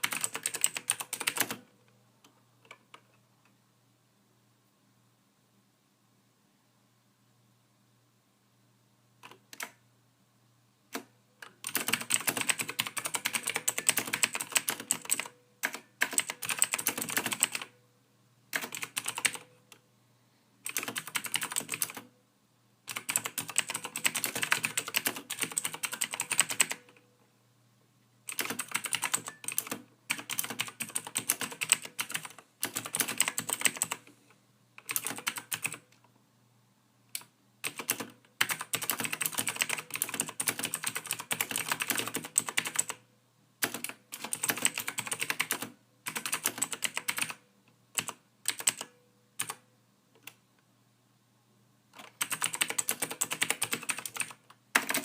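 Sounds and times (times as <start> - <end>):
typing on computer keyboard: 0.0 - 1.7, 9.2 - 9.8, 10.9 - 17.8, 18.5 - 19.5, 20.6 - 22.1, 22.9 - 27.0, 28.3 - 34.1, 34.8 - 36.0, 37.1 - 43.0, 43.6 - 49.6, 52.0 - 55.0.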